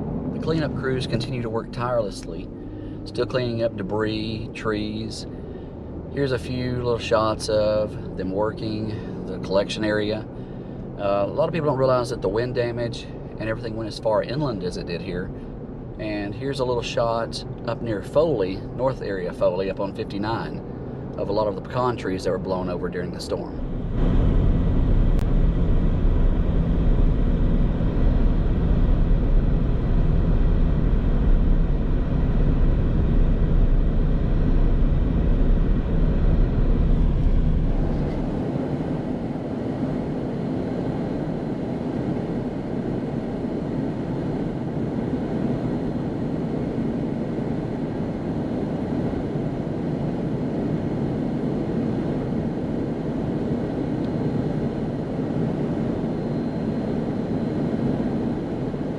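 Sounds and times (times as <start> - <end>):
deep rumble: 0.0 - 11.4, 23.2 - 58.9
vehicle road and engine noise: 0.0 - 58.9.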